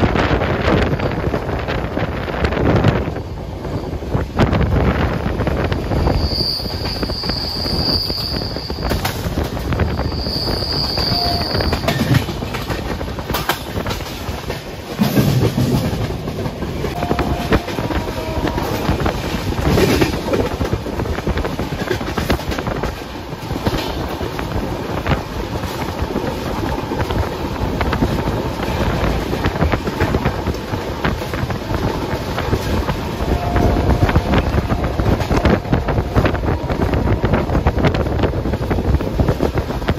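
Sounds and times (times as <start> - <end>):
train coach rumbling: 0.0 - 39.9
wheels clattering over rail joints: 10.9 - 33.0.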